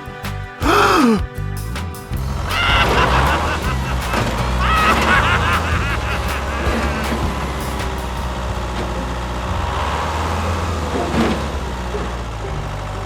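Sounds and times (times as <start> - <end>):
vehicle engine running: 1.4 - 13.0.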